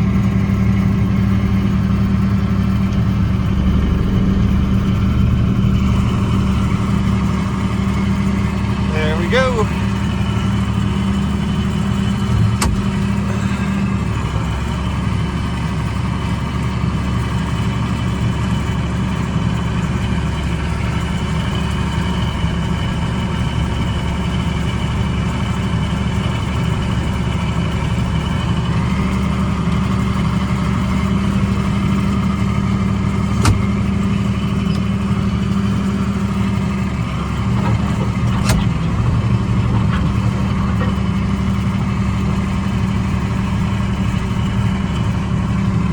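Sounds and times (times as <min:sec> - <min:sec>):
tractor engine running: 0:00.0 - 0:45.9
sharp short knocks: 0:12.3 - 0:13.0, 0:33.4 - 0:33.7.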